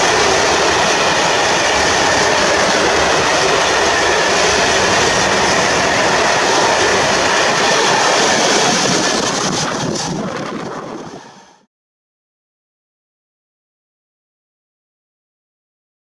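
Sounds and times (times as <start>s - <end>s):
freight train wheels rumbling: 0.0s - 11.7s.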